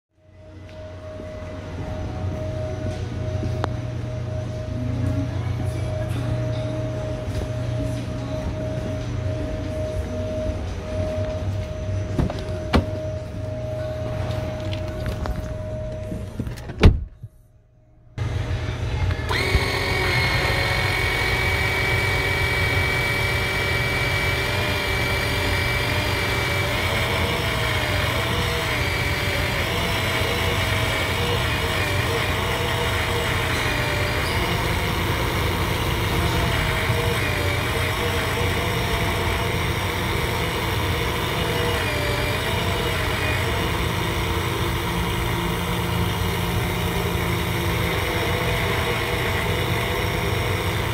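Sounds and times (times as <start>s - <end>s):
car engine running: 19.3s - 50.9s.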